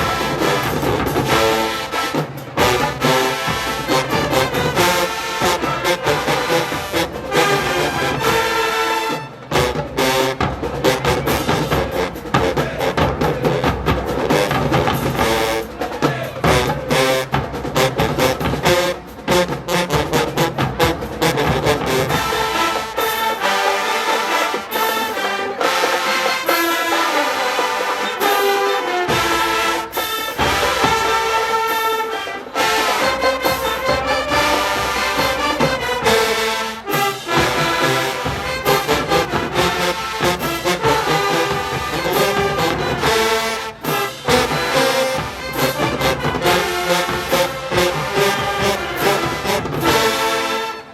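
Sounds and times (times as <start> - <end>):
drumline: 0.0 - 50.9
marching band brass: 0.0 - 50.9.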